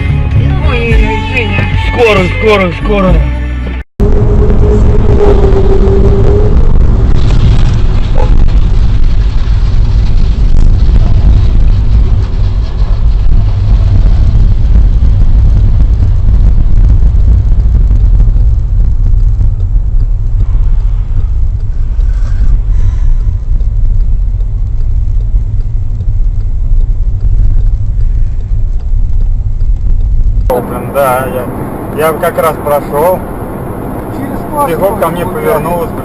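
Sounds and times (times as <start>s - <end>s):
car engine and road noise: 0.0s - 36.0s.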